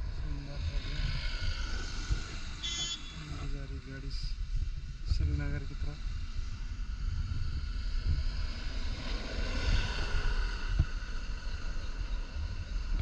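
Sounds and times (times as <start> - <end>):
wind buffeting microphone: 0.0 - 13.0
passing vehicle road noise: 6.0 - 13.0.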